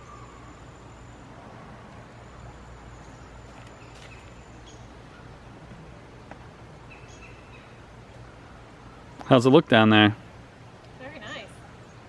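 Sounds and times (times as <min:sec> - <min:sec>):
bird chirps: 0:00.0 - 0:05.4, 0:06.8 - 0:09.3.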